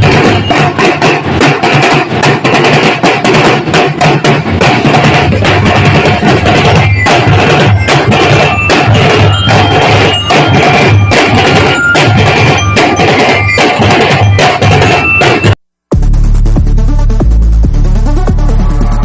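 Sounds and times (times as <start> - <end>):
loud drums beating: 0.0 - 18.6
bell-like melody notes: 5.4 - 15.6.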